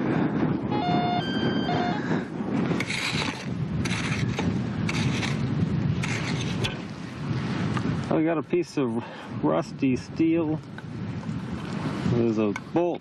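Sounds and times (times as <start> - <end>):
metal detector high tones: 0.7 - 2.1
digging scraping strokes: 2.7 - 6.9.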